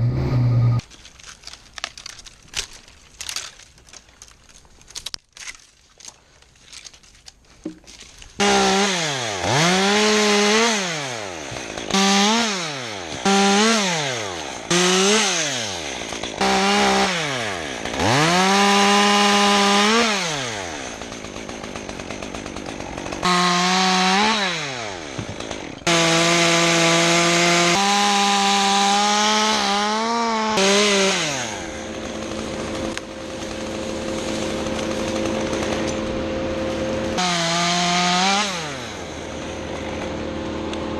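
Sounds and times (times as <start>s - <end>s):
chainsaw revving: 8.4s - 40.9s.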